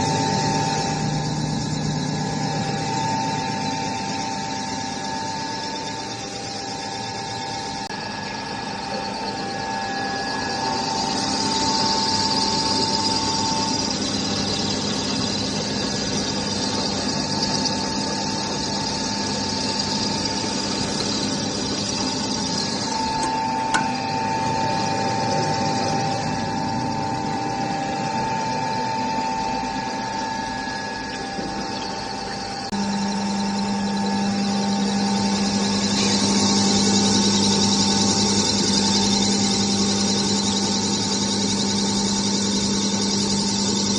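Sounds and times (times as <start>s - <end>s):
extruder machine droning: 0.0s - 43.9s.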